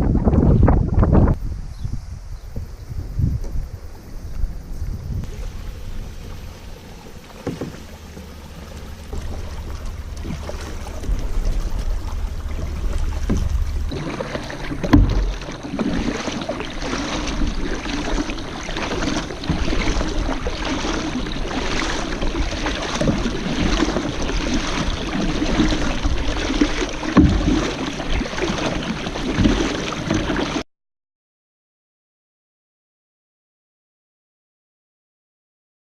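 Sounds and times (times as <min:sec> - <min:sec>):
wind rumbling on microphone: 0:00.0 - 0:30.6
kayak paddle splashing in water: 0:04.4 - 0:30.6.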